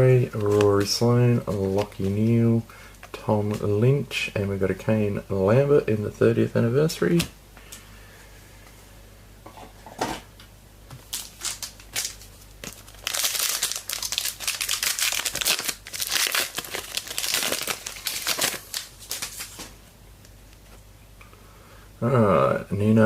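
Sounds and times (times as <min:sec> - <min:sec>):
wrapper tearing and crinkling: 0:11.1 - 0:19.8.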